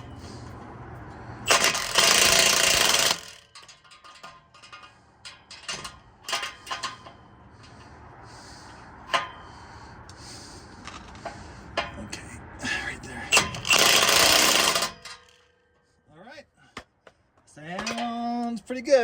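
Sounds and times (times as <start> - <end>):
wrench scraping and clicking: 1.1 - 8.0, 10.8 - 12.0, 13.3 - 15.5.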